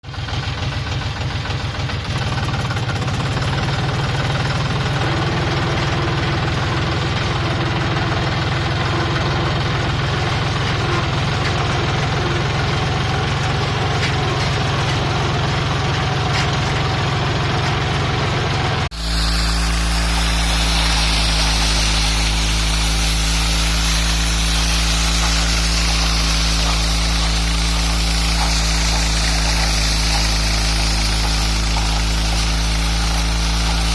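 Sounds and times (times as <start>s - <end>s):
thresher machine running: 0.0s - 33.9s
deep steady hum: 3.5s - 33.9s
hiss of threshed material: 18.9s - 33.9s.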